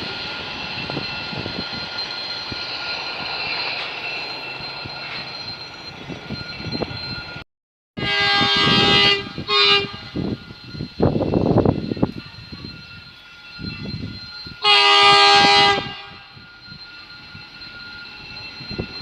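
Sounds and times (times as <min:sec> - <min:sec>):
freight train rumbling past: 0:00.0 - 0:07.4, 0:08.0 - 0:19.0
locomotive horn blasts: 0:08.0 - 0:10.4, 0:14.6 - 0:16.4.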